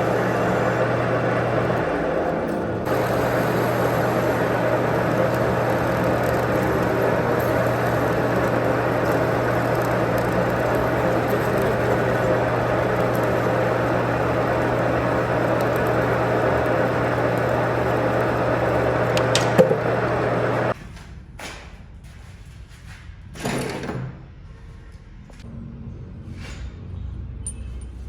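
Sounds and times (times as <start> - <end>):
machine humming: 0.0 - 20.8.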